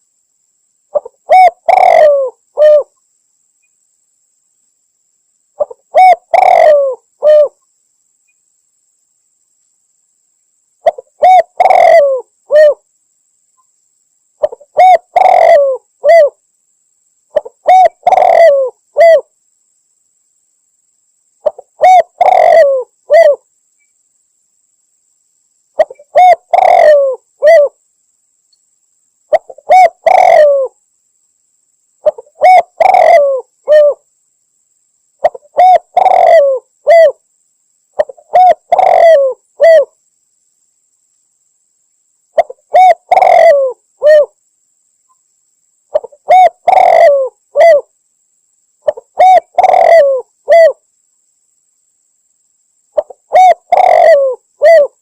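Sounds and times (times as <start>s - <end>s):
dove cooing: 0.9s - 2.9s, 5.6s - 7.6s, 10.8s - 12.8s, 14.4s - 16.4s, 17.3s - 19.3s, 21.4s - 23.4s, 25.8s - 27.8s, 29.3s - 30.8s, 32.0s - 34.0s, 35.2s - 37.2s, 38.0s - 40.0s, 42.4s - 44.4s, 45.9s - 47.9s, 48.8s - 50.8s, 53.0s - 55.0s.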